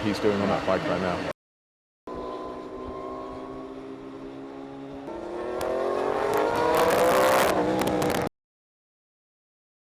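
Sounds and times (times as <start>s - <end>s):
racing engine accelerating: 5.0s - 8.3s.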